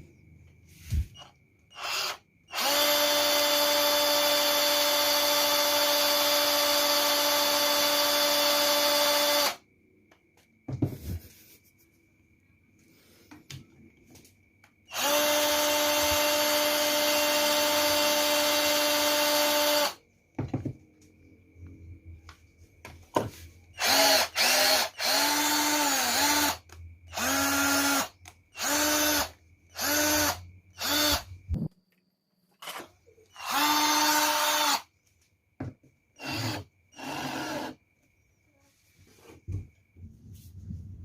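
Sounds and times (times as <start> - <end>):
cordless drill spinning: 0.9 - 9.6, 14.9 - 20.0, 23.8 - 31.3, 32.6 - 34.9, 36.2 - 37.8.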